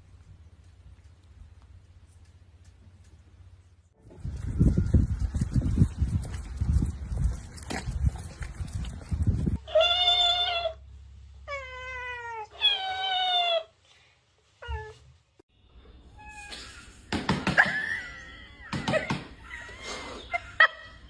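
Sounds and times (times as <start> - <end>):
cat meowing: 9.7 - 10.8.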